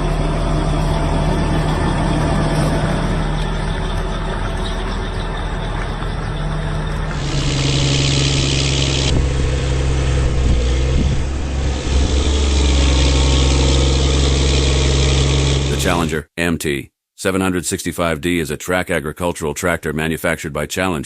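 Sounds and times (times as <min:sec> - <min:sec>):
tractor diesel engine running: 0:00.0 - 0:16.2.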